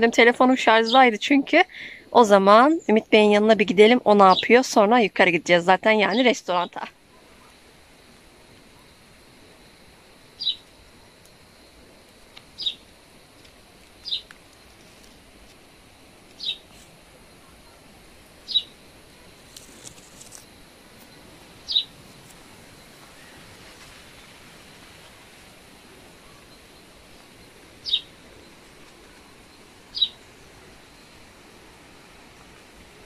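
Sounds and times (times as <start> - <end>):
faint outdoor background: 0.0 - 33.0
bird chirping: 10.4 - 10.6, 12.6 - 12.8, 14.0 - 14.3, 16.4 - 16.6, 18.5 - 18.7, 21.1 - 21.9, 27.8 - 28.1, 29.9 - 30.2.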